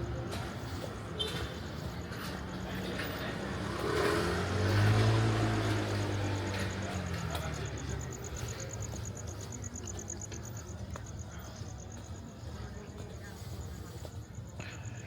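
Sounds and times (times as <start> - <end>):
passing car rumble: 1.7 - 10.7.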